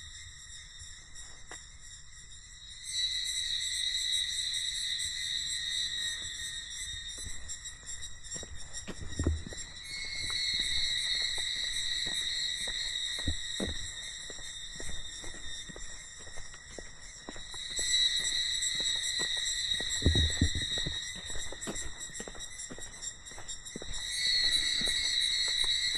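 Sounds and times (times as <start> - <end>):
cicadas droning: 0.0 - 25.9
footsteps: 7.0 - 25.9.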